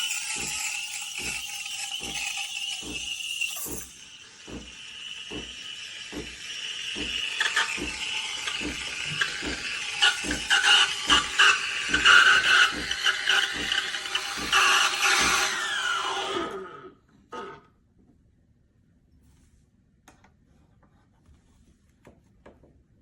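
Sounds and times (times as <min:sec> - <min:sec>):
espresso machine hissing whir: 0:00.0 - 0:17.6.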